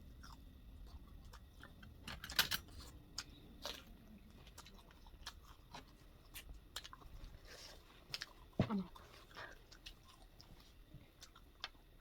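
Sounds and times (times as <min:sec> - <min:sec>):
chewing and biting: 0:02.6 - 0:12.0.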